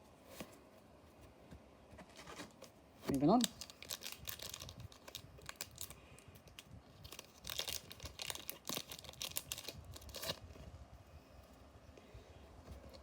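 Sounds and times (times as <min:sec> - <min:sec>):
wrapper tearing and crinkling: 0:03.4 - 0:10.4.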